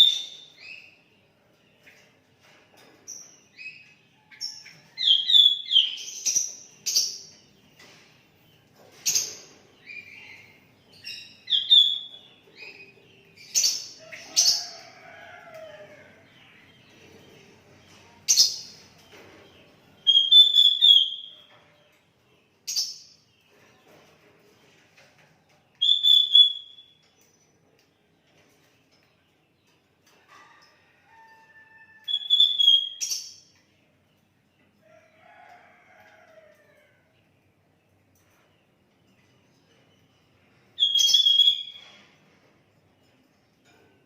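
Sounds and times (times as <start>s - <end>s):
bulbul singing: 20.0s - 21.4s, 25.8s - 27.0s, 32.1s - 33.5s, 40.8s - 41.9s
sharp loud bird calls: 20.1s - 21.4s, 25.8s - 27.0s, 32.1s - 33.3s, 40.8s - 42.0s.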